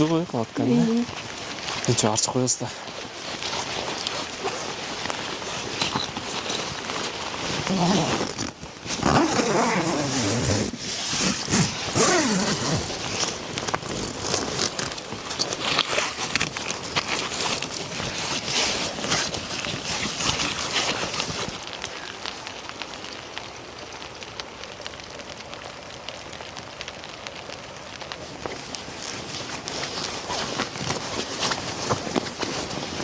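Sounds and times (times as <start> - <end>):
voices: 0.0 - 1.1
rain on a tent: 0.0 - 33.0
handling clicks and rustles: 1.1 - 23.5, 26.8 - 33.0.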